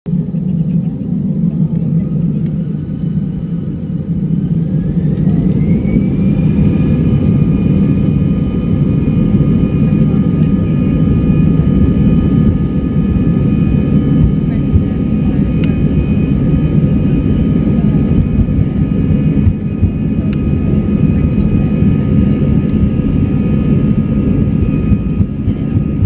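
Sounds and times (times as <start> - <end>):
heavy rumble: 0.1 - 26.0
jet engines spooling up: 0.1 - 26.0.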